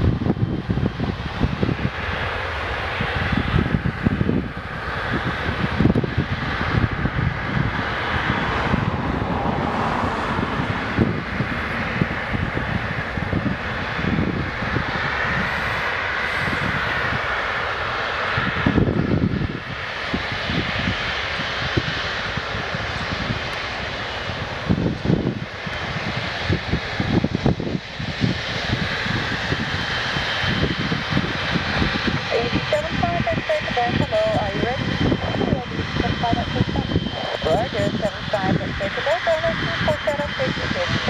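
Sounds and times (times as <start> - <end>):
jet engines whine and roar: 0.0 - 41.0
wind rumbling on microphone: 0.0 - 41.0.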